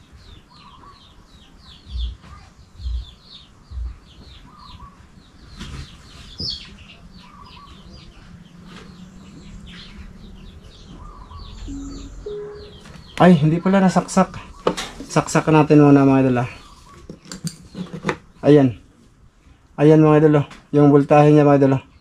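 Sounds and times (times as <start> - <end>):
small birds chirping: 0.0 - 22.0
dull low thumps: 1.9 - 4.1.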